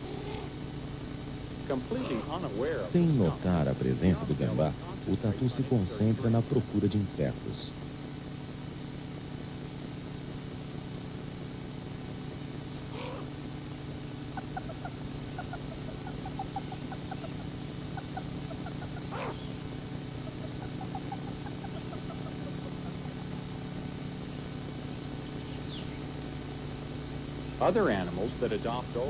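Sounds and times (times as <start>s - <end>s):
steady hum and hiss: 0.0s - 29.0s
sweeping bird calls: 1.6s - 6.8s, 12.8s - 13.5s, 14.2s - 29.0s
bird chirping: 1.6s - 7.8s, 14.2s - 29.0s.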